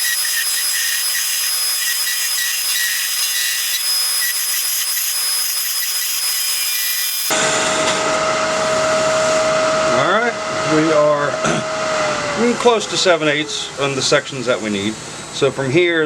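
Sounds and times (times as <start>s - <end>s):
lathe humming: 0.0s - 7.4s
lathe tool cutting wood: 0.0s - 7.4s.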